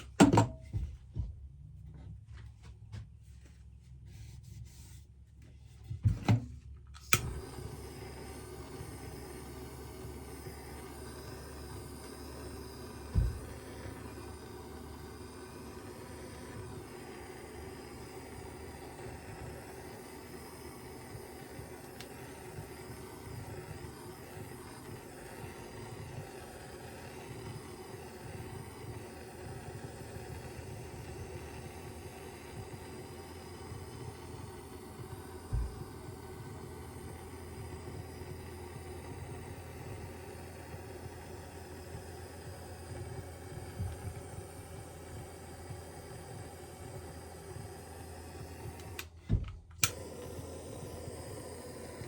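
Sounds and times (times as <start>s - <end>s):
short dull thumps: 35.0s - 36.0s, 49.2s - 49.9s.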